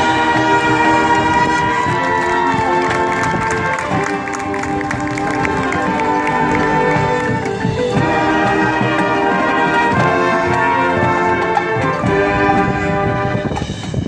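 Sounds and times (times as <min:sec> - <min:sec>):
brass chords: 0:00.0 - 0:14.0
percussion hits: 0:00.0 - 0:14.0.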